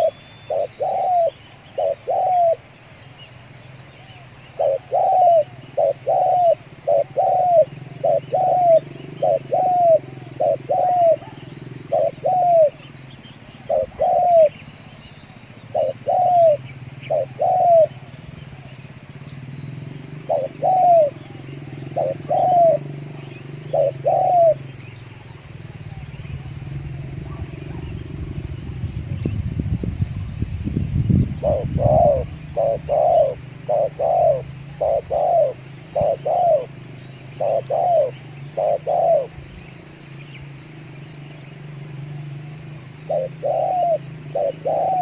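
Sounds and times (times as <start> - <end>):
dove cooing: 0.0 - 2.8, 4.0 - 29.5, 31.3 - 45.0.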